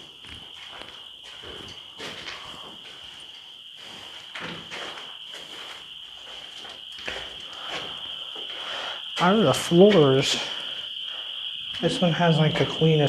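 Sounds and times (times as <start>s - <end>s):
footsteps on concrete: 0.0s - 8.6s
crickets chirping: 0.0s - 13.0s.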